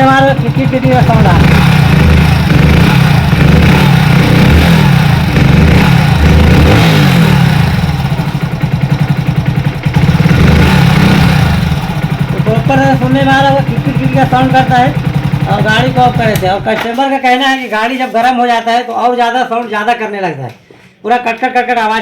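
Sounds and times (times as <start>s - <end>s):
engine rattling and ticking: 0.0s - 16.8s
motorcycle engine revving: 0.0s - 16.9s.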